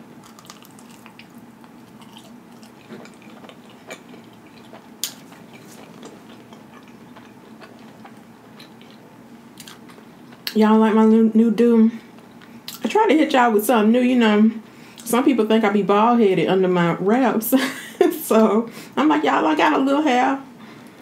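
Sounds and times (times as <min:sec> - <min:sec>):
chewing with wet mouth sounds: 0:00.2 - 0:09.0.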